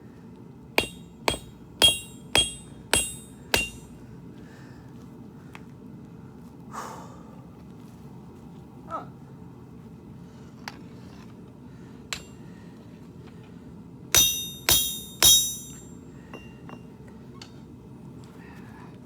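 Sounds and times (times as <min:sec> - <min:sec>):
hammer ringing on anvil: 0:00.8 - 0:04.0, 0:12.2 - 0:12.4, 0:14.2 - 0:16.9.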